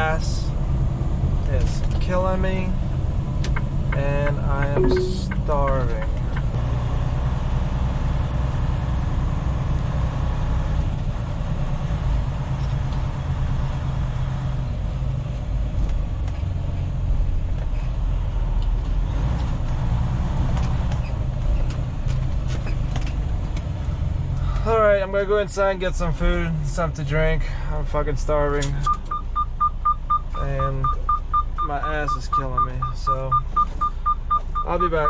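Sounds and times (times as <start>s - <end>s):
diesel truck engine running: 29.1s - 35.0s.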